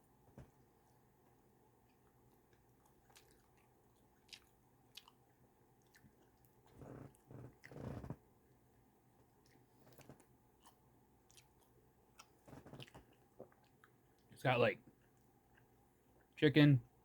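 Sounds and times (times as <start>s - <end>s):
wet bites and chewing: 1.8s - 8.3s, 9.3s - 14.3s.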